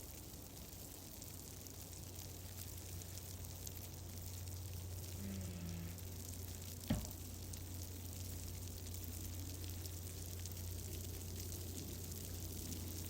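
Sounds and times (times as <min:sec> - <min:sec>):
low steady rumble: 0:00.0 - 0:13.0
wood fire crackling: 0:00.0 - 0:13.0
sharp loud pop: 0:06.9 - 0:07.2.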